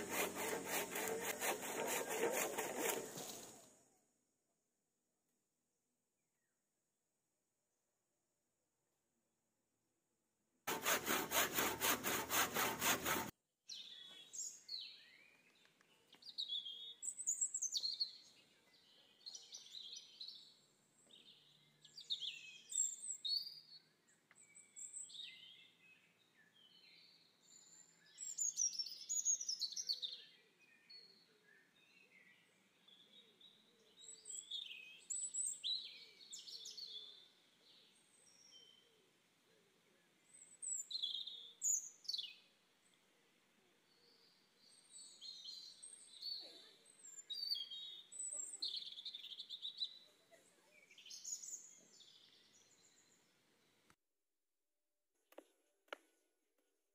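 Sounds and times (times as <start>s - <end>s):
loud rapid even strokes: 0.0s - 3.4s, 10.7s - 13.3s
songbirds chirping: 13.7s - 54.0s.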